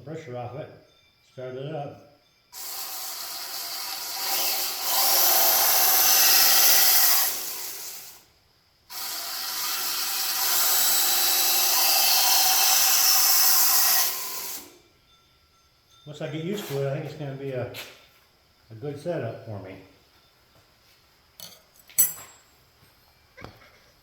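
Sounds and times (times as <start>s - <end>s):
belt grinder grinding: 2.6s - 8.2s, 8.9s - 14.8s.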